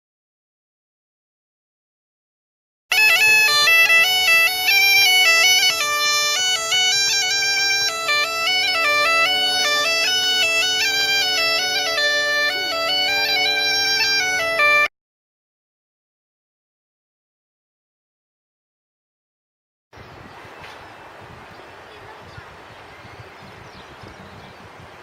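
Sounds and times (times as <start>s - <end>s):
bagpipe tune: 2.9s - 14.9s.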